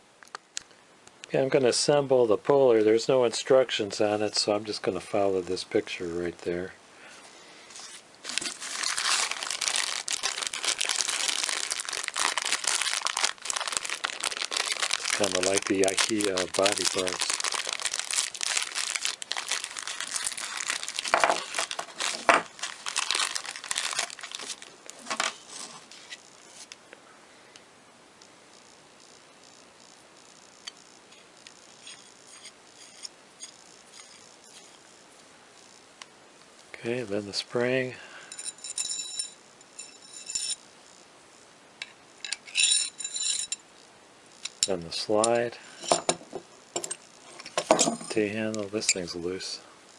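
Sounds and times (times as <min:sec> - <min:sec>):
packaging crinkling and rustling: 0:07.8 - 0:26.7
metal parts jingling: 0:42.3 - 0:43.6.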